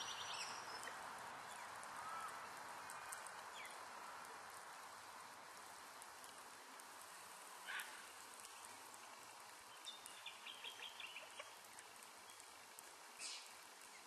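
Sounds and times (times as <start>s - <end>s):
faint outdoor hiss: 0.0s - 14.0s
small bird chirping: 9.7s - 12.5s.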